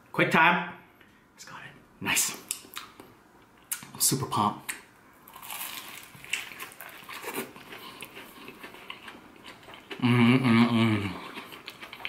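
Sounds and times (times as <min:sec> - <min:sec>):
person chewing crispy food: 0:05.3 - 0:12.0
person humming mmm: 0:09.9 - 0:11.6.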